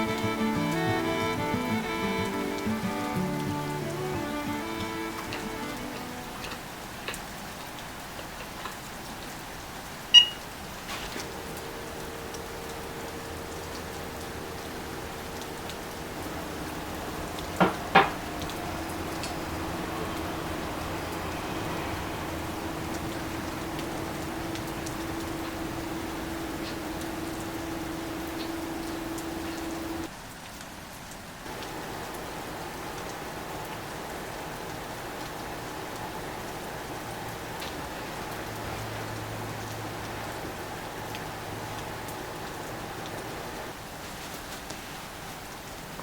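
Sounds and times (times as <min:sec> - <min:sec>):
rain falling: 0:00.0 - 0:46.0
single drops ticking: 0:10.1 - 0:10.5
steady hum: 0:11.2 - 0:30.1.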